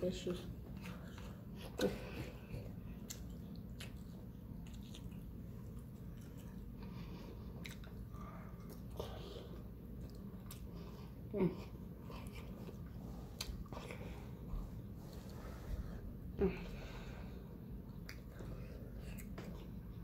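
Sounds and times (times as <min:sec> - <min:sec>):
chewing mouth sounds: 0:00.6 - 0:14.4, 0:17.8 - 0:20.0.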